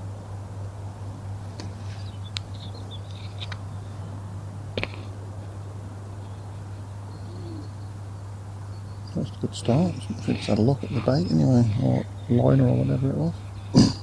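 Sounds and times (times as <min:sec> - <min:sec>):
steady low hum: 0:00.0 - 0:14.0
faint bird chirps: 0:01.9 - 0:04.2, 0:06.2 - 0:14.0.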